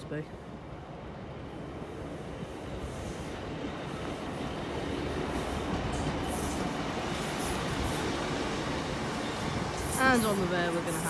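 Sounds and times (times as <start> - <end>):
diesel train approaching: 0.2 - 11.0.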